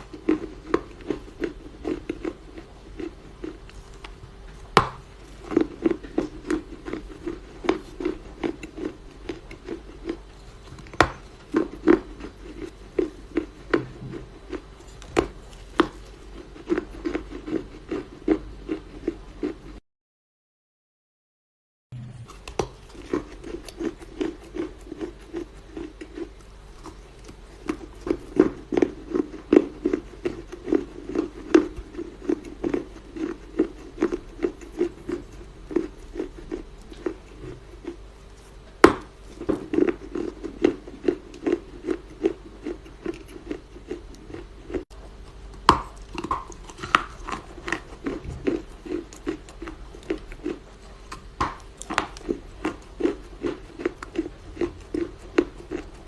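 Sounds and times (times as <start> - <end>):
clay crunching: 3.7 - 7.0.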